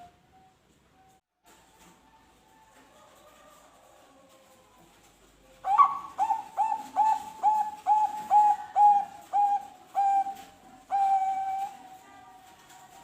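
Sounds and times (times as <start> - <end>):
dove cooing: 5.5 - 12.1.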